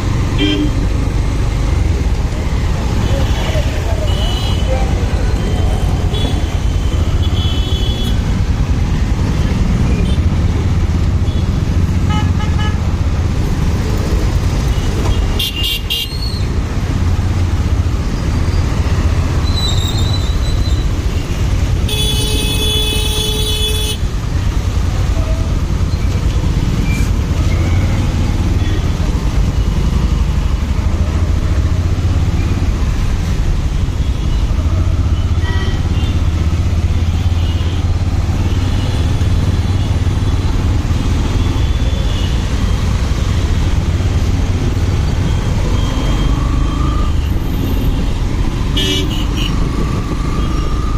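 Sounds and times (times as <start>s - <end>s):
motorcycle engine and wind rumble: 46.5s - 50.9s
vehicle horn: 48.8s - 49.5s.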